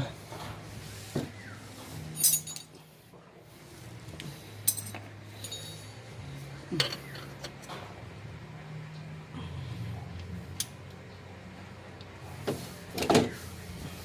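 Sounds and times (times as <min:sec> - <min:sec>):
hand tools clinking against metal: 0:02.1 - 0:02.8, 0:04.6 - 0:06.1.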